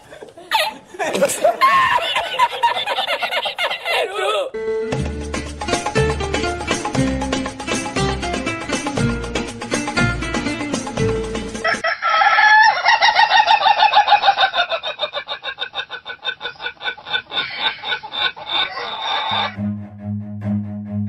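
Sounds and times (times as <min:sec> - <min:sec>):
music: 0:04.6 - 0:11.8, 0:19.6 - 0:21.0
rooster crowing: 0:11.6 - 0:15.2, 0:17.2 - 0:19.6.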